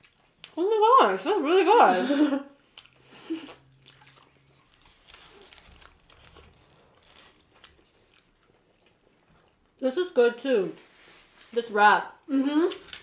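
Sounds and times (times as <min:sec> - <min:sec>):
faint biting and chewing: 0:02.6 - 0:09.8.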